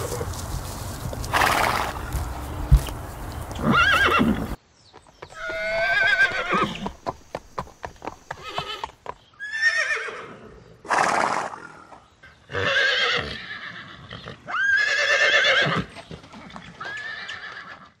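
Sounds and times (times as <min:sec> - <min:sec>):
harsh noisy horse call: 0:01.3 - 0:02.0
horses whinnying: 0:01.3 - 0:02.1, 0:03.6 - 0:04.6, 0:05.4 - 0:07.0, 0:08.3 - 0:11.7, 0:12.5 - 0:18.0.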